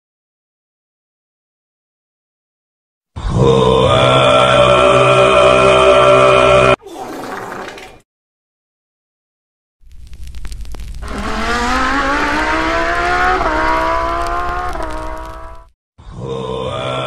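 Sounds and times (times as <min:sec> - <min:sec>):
engine crackle: 0:09.8 - 0:15.7
car engine accelerating: 0:11.0 - 0:15.7.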